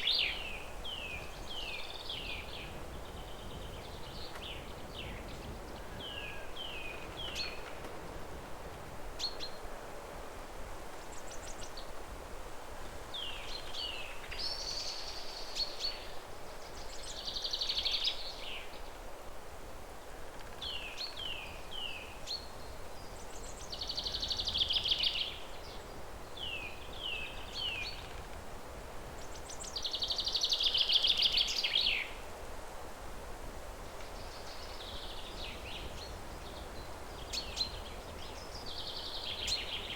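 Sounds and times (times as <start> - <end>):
songbird singing: 0.0 - 8.0, 13.1 - 19.0, 20.3 - 32.2, 33.9 - 39.9
outdoor background hiss: 0.0 - 39.9.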